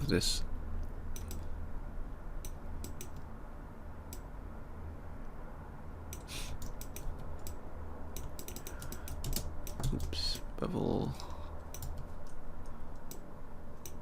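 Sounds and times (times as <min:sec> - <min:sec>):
low steady hum: 0:00.0 - 0:14.0
keyboard and mouse clicking: 0:01.1 - 0:01.4, 0:02.4 - 0:03.3, 0:06.1 - 0:10.5, 0:11.2 - 0:14.0.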